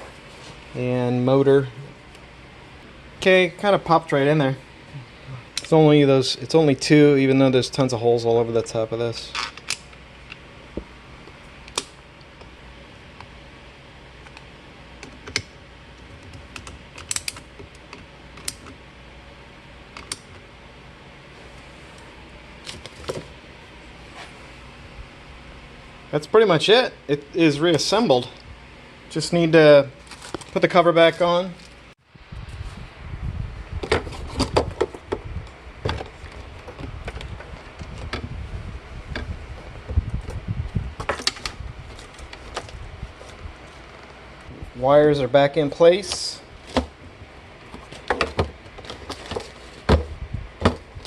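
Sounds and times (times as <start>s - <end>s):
steady low hum: 0.0s - 51.0s
low handling rumble: 32.1s - 51.0s.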